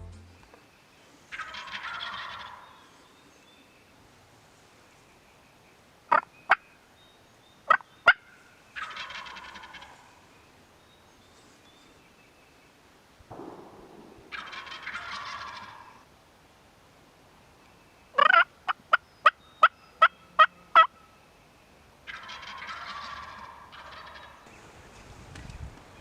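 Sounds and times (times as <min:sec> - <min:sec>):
turkey gobbling: 0:01.3 - 0:02.8, 0:07.7 - 0:10.1, 0:14.2 - 0:16.0, 0:18.2 - 0:20.9, 0:22.1 - 0:24.4
short sharp turkey calls: 0:01.3 - 0:03.0, 0:06.1 - 0:06.7, 0:07.7 - 0:10.3, 0:13.3 - 0:16.1, 0:18.2 - 0:21.0, 0:22.1 - 0:24.5.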